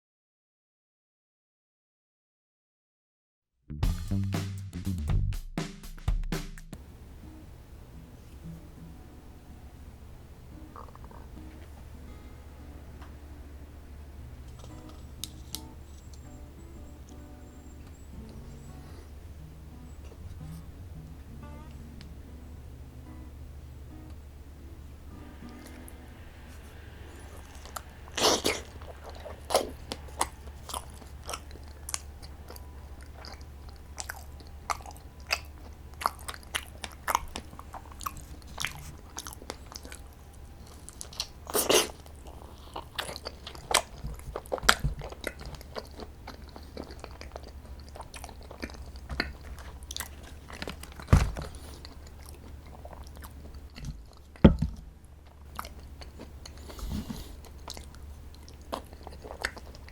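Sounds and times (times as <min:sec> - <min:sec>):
low steady hum: 0:06.7 - 0:59.9
chewing and biting food: 0:27.4 - 0:59.9
crunchy bites: 0:27.7 - 0:54.6.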